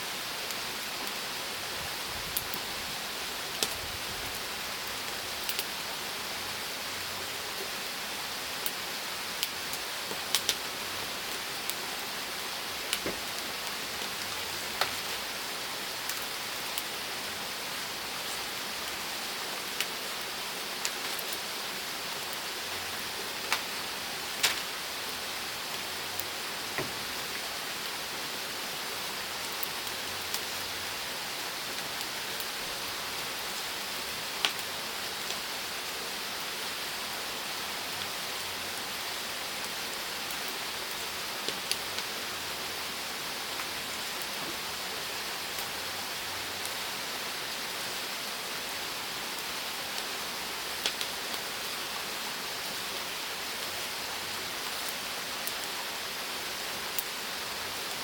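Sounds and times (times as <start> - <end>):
wood fire crackling and popping: 3.5 - 5.8, 9.4 - 15.4, 20.8 - 21.5, 22.2 - 27.9, 34.4 - 35.4, 50.8 - 52.0.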